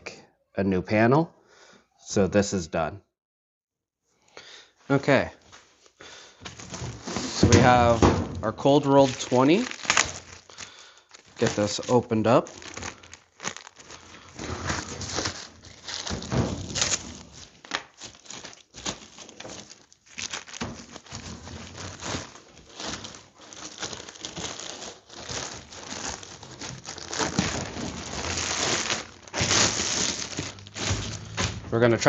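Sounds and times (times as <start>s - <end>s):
wrapping torn and crumpled: 8.6s - 32.0s.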